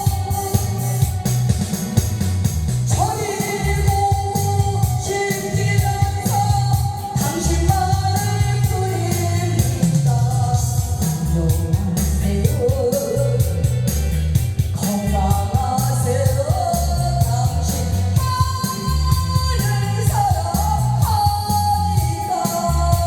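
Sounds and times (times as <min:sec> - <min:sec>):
accompaniment with steady beat: 0:00.0 - 0:23.0.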